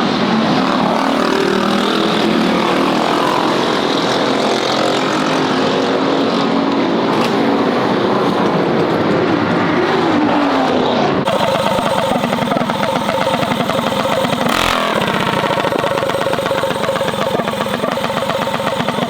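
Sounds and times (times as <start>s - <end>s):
mini bike engine running: 0.6s - 5.6s, 11.3s - 19.0s.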